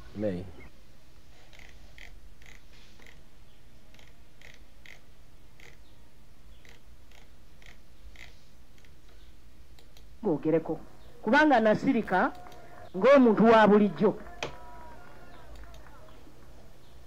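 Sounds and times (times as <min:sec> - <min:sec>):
bird chirping: 0:00.4 - 0:00.7, 0:05.6 - 0:06.8, 0:10.5 - 0:13.2
low steady hum: 0:03.2 - 0:17.0.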